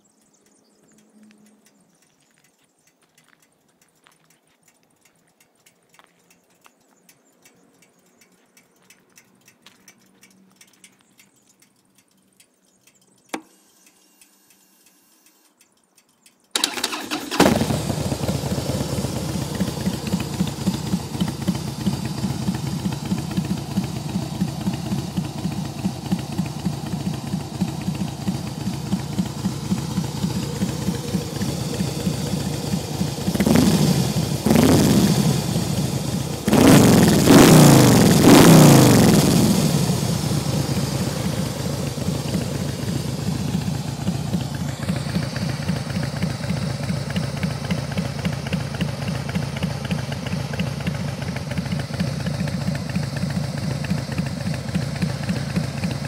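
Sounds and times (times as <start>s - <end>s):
single click: 13.3s - 15.6s
motorcycle starter turning: 15.4s - 38.2s, 39.2s - 56.0s
motorcycle engine idling: 16.2s - 56.0s.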